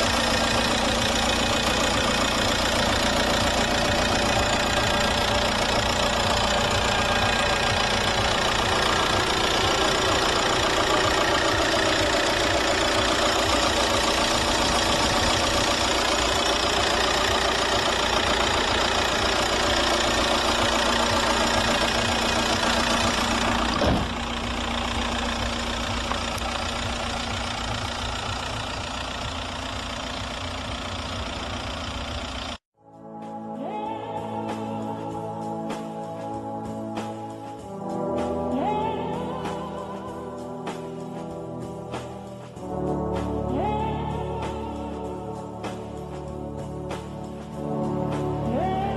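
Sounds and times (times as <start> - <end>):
diesel engine idling: 0.0 - 32.6.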